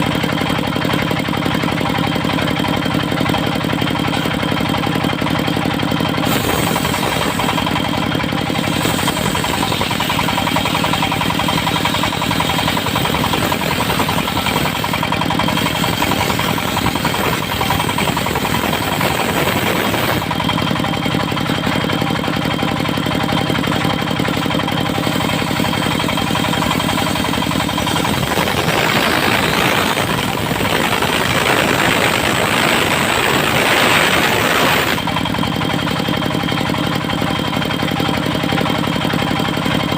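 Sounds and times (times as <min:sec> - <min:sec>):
sawmill engine running: 0:00.0 - 0:39.9
saw blade cutting wood: 0:03.8 - 0:04.9, 0:05.5 - 0:22.4, 0:23.6 - 0:35.8.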